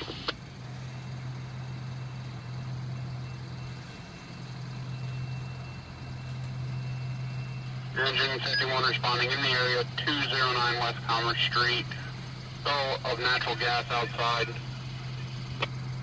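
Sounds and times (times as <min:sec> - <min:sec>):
fire engine idling: 0:00.0 - 0:16.0
radio click: 0:15.5 - 0:15.8.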